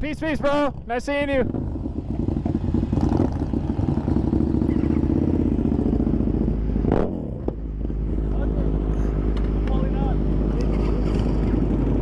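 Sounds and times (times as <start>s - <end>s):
motorcycle engine running: 1.4s - 12.0s.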